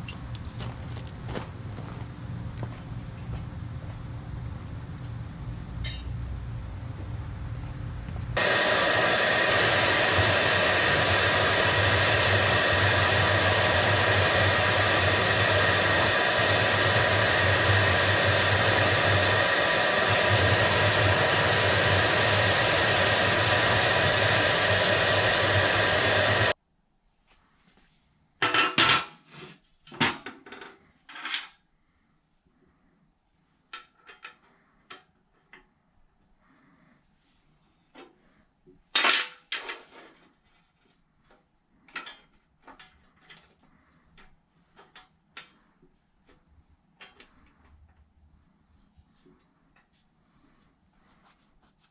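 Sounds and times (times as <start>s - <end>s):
loud hiss with low hum: 0.0s - 26.6s
metallic clinks and knocks: 2.7s - 3.4s, 5.8s - 6.3s.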